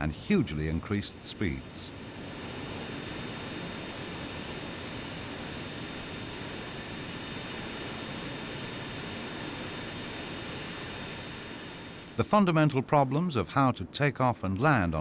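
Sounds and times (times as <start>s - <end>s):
jet engine running: 0.0s - 13.6s.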